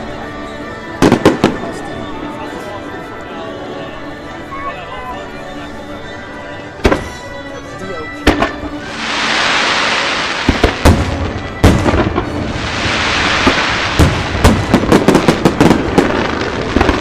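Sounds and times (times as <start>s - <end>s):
fireworks bangs: 1.0s - 1.8s, 8.2s - 17.0s
fireworks hissing crackle: 8.4s - 17.0s.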